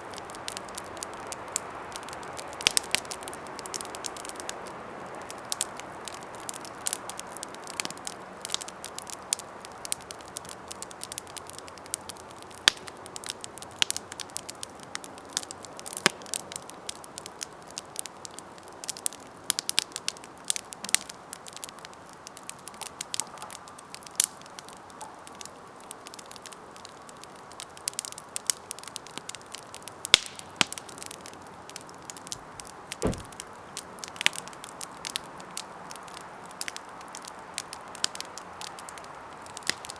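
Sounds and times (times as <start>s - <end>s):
wood crackling and popping: 25.4s - 39.9s.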